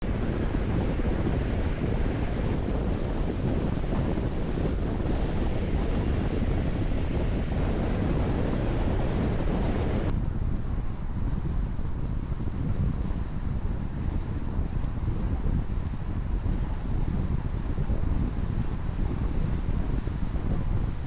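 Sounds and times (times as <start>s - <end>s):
wind on microphone: 0.0s - 21.0s
car road noise: 5.1s - 10.1s.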